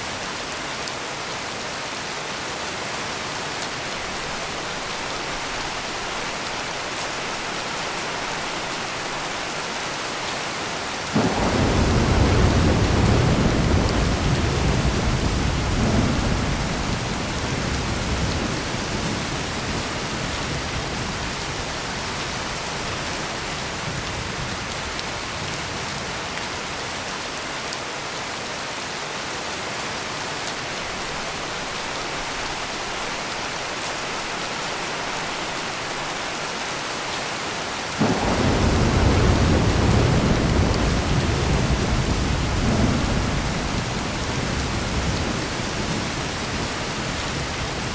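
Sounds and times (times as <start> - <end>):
heavy rain pouring: 0.0 - 47.9
thunder rumbling: 11.2 - 21.2, 38.0 - 47.9.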